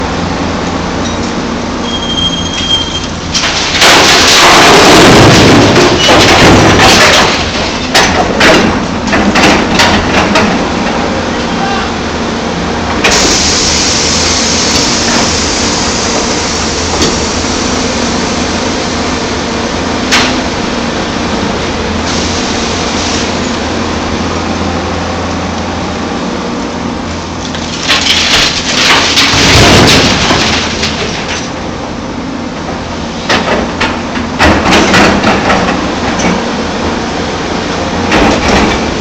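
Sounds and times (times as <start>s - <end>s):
excavator diesel engine running: 0.0s - 39.0s
hydraulics: 0.6s - 12.1s
loud crunching rattle: 3.3s - 10.4s, 27.5s - 31.6s.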